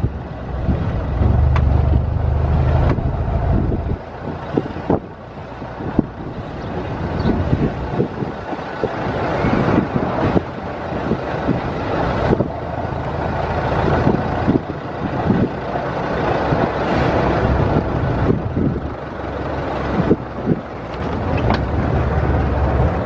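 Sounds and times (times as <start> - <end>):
car rattles and knocks: 0.0 - 6.2, 20.4 - 22.2
old car engine running: 0.0 - 23.0.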